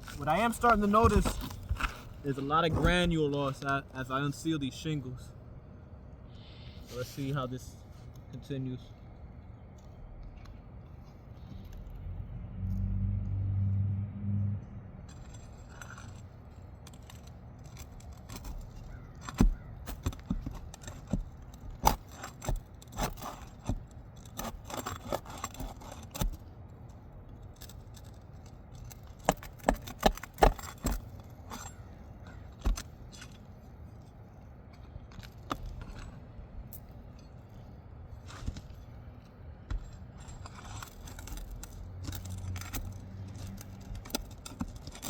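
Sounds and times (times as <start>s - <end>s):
pry bar scraping roof shingles: 0.0s - 4.2s, 15.1s - 36.4s, 37.0s - 45.0s.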